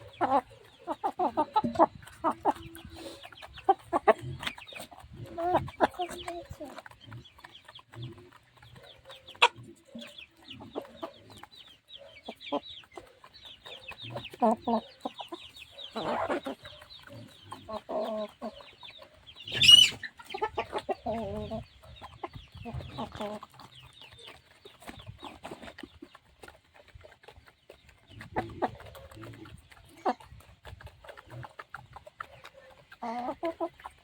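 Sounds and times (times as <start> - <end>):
chickens clucking: 0.0 - 34.0
chicks peeping: 0.0 - 34.0.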